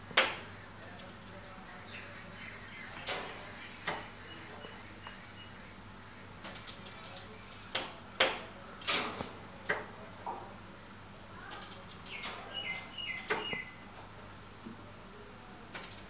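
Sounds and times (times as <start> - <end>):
small birds calling: 0.4 - 8.0, 11.3 - 14.0.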